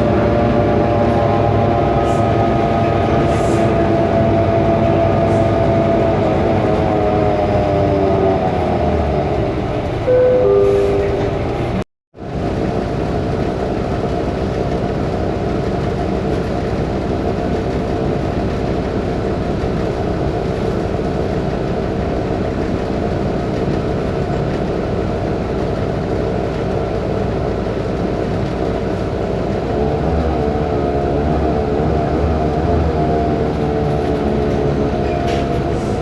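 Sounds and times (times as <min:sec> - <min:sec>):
bus diesel engine drone: 0:00.0 - 0:36.0.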